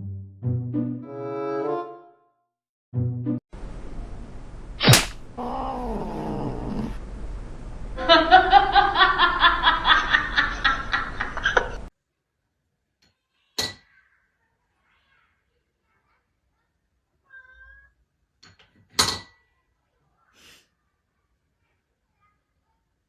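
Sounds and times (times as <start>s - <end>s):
sharp click: 4.8s - 5.2s
cat yowling: 5.4s - 7.0s.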